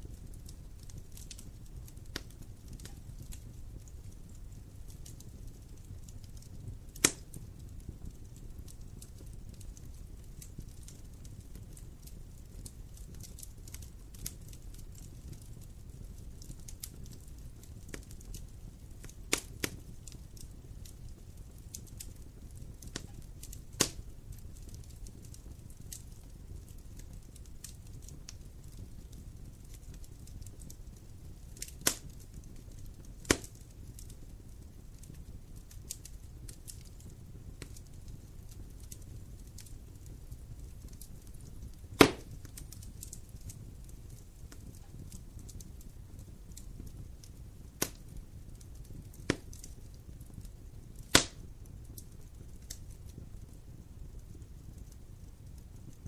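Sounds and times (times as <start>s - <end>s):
low rumble of fire: 0.0s - 56.0s
small ticks of crackling fire: 0.0s - 56.0s
loud sharp fire pops: 5.1s - 7.5s, 19.0s - 20.2s, 21.7s - 25.3s, 31.6s - 34.1s, 40.9s - 43.2s, 47.8s - 48.1s, 49.1s - 49.7s, 51.0s - 52.1s.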